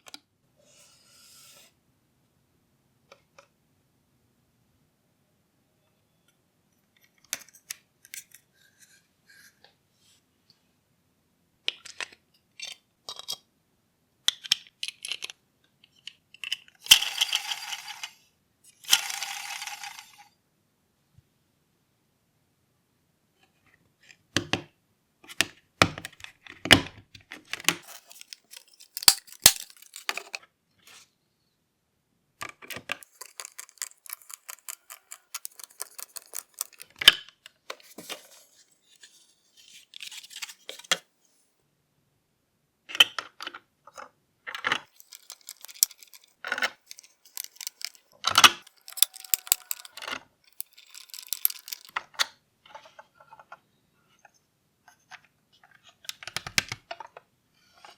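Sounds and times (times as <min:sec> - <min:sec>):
plastic parts clicking and tapping: 0:26.7 - 0:30.4, 0:32.4 - 0:39.0, 0:44.5 - 0:52.3.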